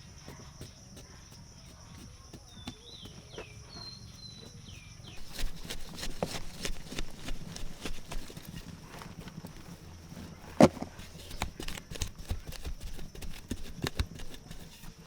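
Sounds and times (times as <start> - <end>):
irregular knocks and taps: 10.5 - 15.0.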